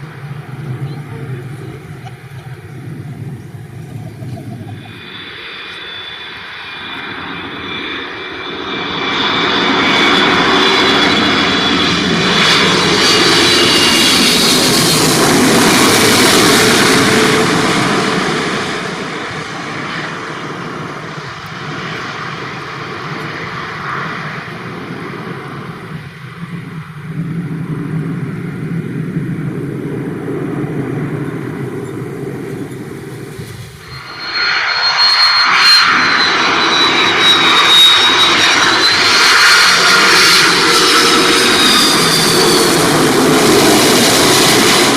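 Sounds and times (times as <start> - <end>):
jet engines of plane flying over: 0.0 - 44.9.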